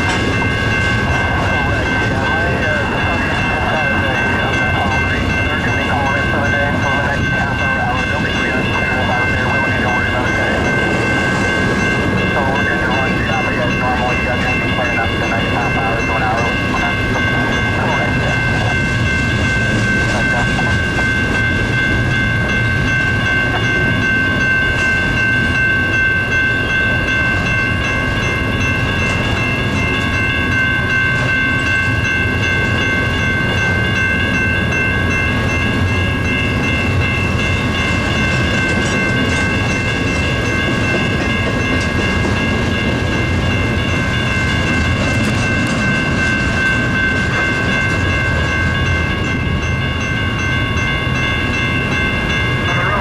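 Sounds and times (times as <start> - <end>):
high-pitched ringing tone: 0.0 - 53.0
train wheels rumbling and clicking: 0.0 - 53.0.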